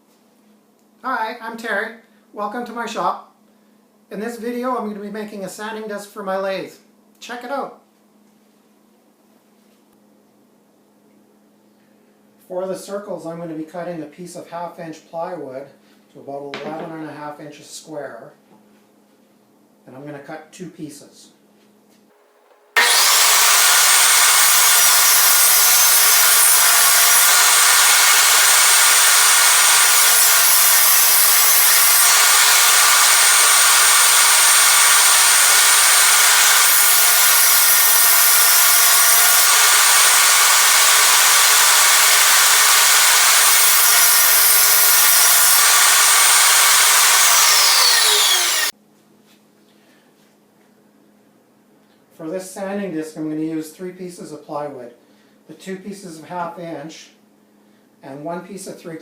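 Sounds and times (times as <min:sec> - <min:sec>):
electric saw cutting plywood: 0:22.6 - 0:48.7.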